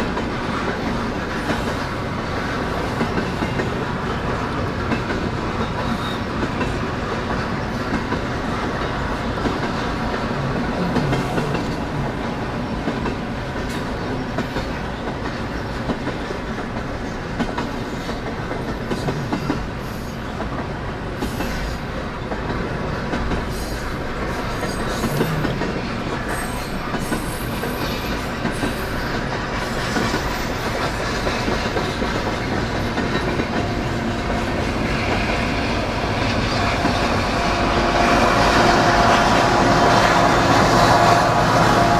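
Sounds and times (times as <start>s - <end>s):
train wheels rumbling on rail: 0.0s - 41.9s
faint high wheel squeal: 5.6s - 6.4s.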